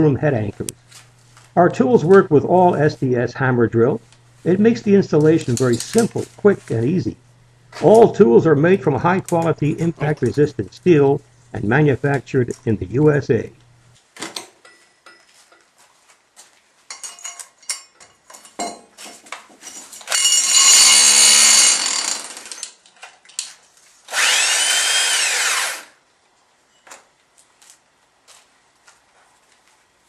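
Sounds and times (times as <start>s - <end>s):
tools and hardware clicking: 16.9s - 23.6s
hammer drill running: 20.1s - 22.7s, 24.1s - 26.0s.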